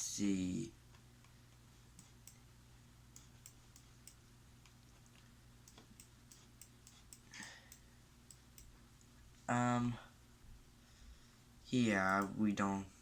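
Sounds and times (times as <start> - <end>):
low steady hum: 0.0 - 13.0
computer clicks: 3.1 - 9.1.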